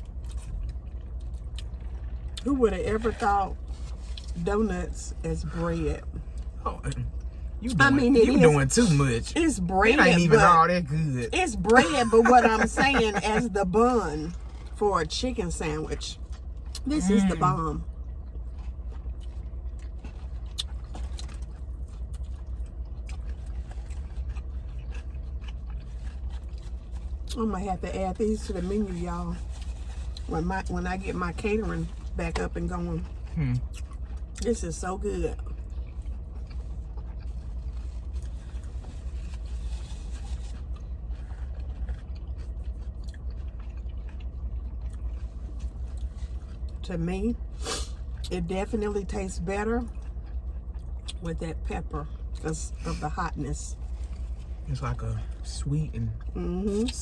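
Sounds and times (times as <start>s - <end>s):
chewing: 0.0s - 10.6s, 12.6s - 53.1s, 53.7s - 55.4s
steady low hum: 0.0s - 57.0s
steady low rumble: 0.0s - 57.0s
food wrapping crackling: 36.0s - 43.5s.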